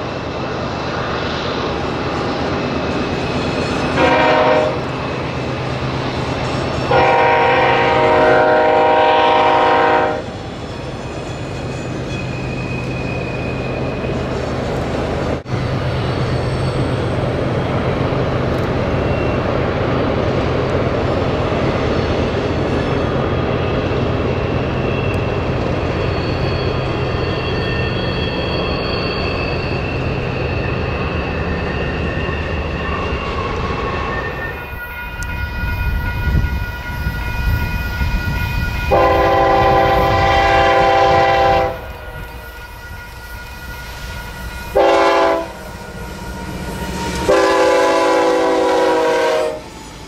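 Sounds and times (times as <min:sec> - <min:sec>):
locomotive engines droning: 0:00.0 - 0:50.0
train horn blast: 0:04.0 - 0:04.9, 0:06.9 - 0:10.4, 0:38.9 - 0:41.9, 0:44.7 - 0:49.7.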